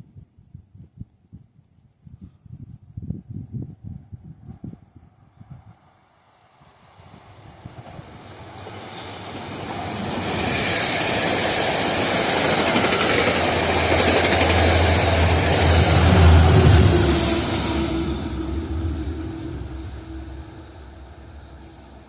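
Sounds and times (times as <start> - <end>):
low train rumble: 3.7 - 22.0
train rushing with high whine: 6.2 - 22.0.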